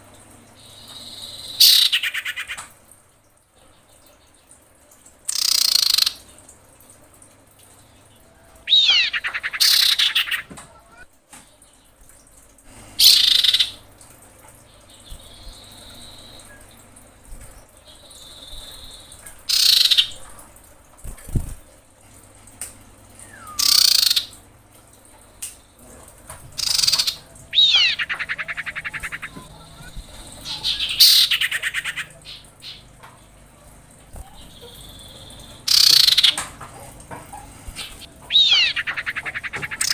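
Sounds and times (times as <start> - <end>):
bird harsh calls: 0.6 - 2.6, 5.3 - 6.2, 8.6 - 11.0, 13.0 - 13.8, 18.2 - 20.2, 23.2 - 24.4, 26.6 - 33.0, 34.2 - 36.4, 37.3 - 39.9
bird rattling trills: 5.3 - 6.2, 8.6 - 10.5, 18.1 - 20.1, 23.3 - 24.3, 26.6 - 32.9, 34.2 - 36.4, 37.4 - 39.9.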